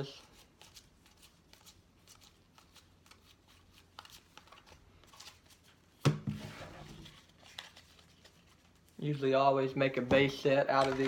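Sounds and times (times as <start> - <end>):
trading cards flicking and rustling: 0.0 - 6.0, 7.0 - 9.0, 10.2 - 11.0.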